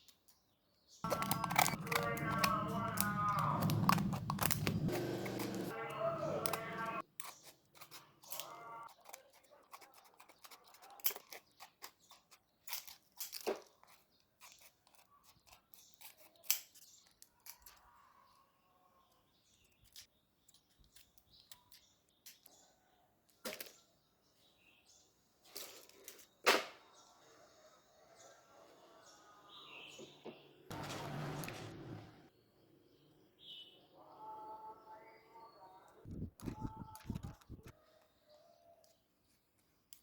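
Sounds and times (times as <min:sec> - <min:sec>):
sharp clicks and snips: 0:01.1 - 0:04.8.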